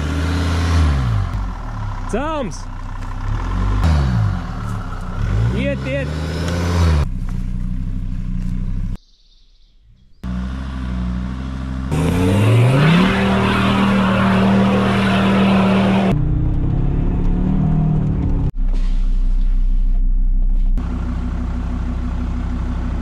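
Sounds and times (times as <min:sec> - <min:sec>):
car engine revving: 0:00.0 - 0:09.0, 0:10.2 - 0:18.6.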